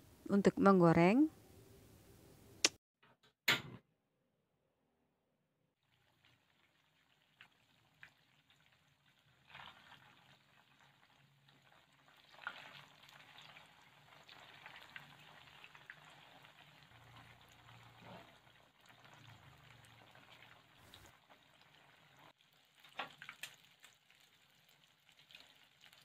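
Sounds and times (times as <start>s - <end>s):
tofu sizzling and crackling in oil: 5.9s - 26.0s.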